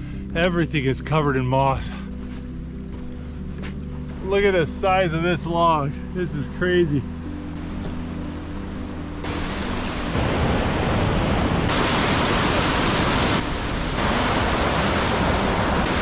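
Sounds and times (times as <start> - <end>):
rushing water: 9.2 - 16.0.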